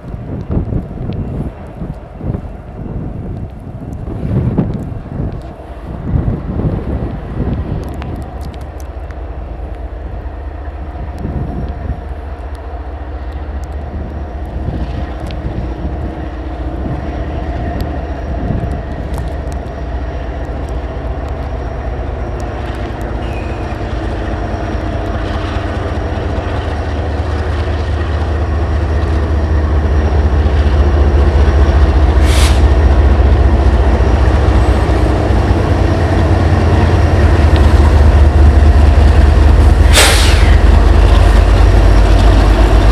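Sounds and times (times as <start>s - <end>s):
diesel locomotive engines: 0.0s - 42.9s
train knocks: 20.4s - 42.9s
air hiss: 32.2s - 32.8s, 39.8s - 40.8s.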